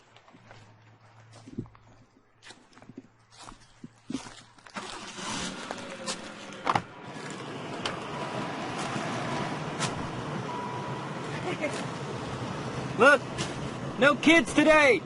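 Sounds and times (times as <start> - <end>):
van engine running: 4.2 - 15.0.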